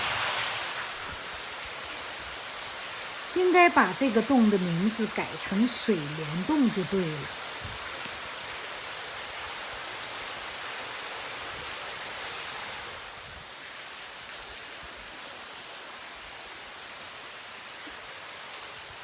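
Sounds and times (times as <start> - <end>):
water dripping in a cave: 1.1 - 11.0.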